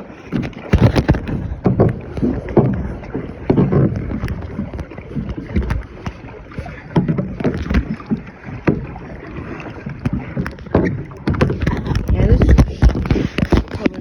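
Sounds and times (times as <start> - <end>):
water sloshing and splashing: 0.0 - 14.0
sharp knocks: 0.4 - 9.0.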